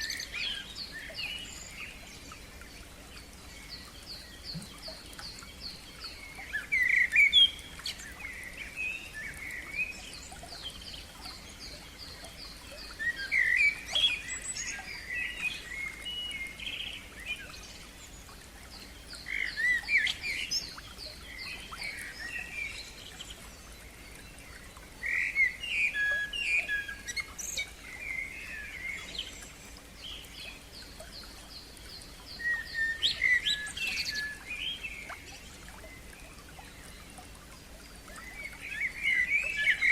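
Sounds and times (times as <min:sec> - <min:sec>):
bird singing varied phrases: 0:30.1 - 0:37.2.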